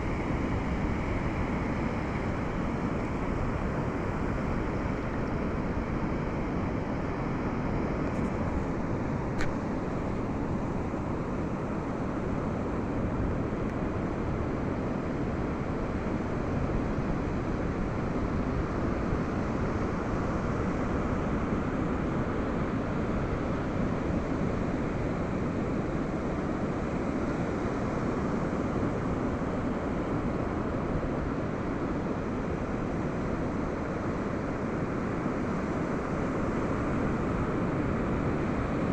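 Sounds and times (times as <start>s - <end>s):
brief click: 9.4s - 9.6s.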